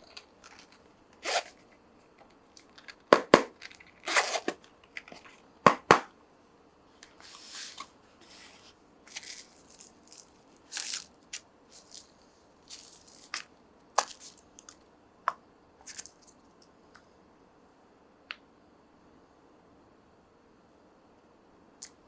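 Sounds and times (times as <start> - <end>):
packaging rustling and clicking: 0.0 - 5.4, 9.1 - 14.8.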